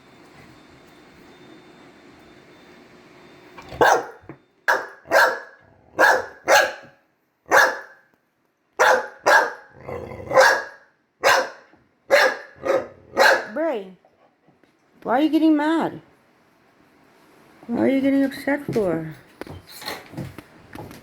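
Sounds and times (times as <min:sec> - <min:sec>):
dog barking: 0:03.7 - 0:08.1, 0:08.8 - 0:13.6.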